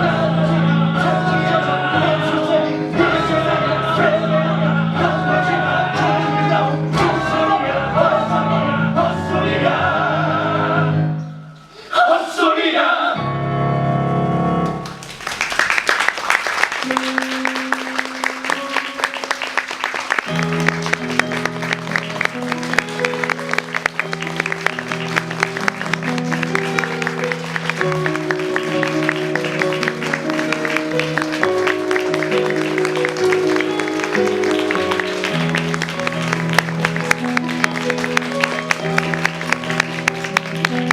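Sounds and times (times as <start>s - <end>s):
cast singing together: 0.0s - 13.2s
audience applauding: 14.6s - 40.9s
instrumental accompaniment: 16.6s - 40.9s.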